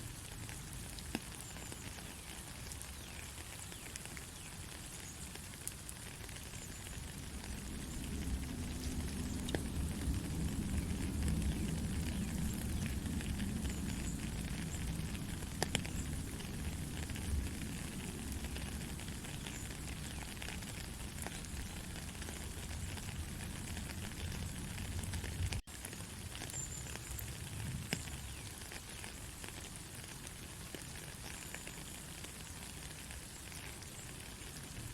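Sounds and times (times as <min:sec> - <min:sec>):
heavy rain pattering: 0:00.0 - 0:34.9
sharp raindrop hit: 0:06.6 - 0:25.7
low rumble: 0:07.1 - 0:18.4.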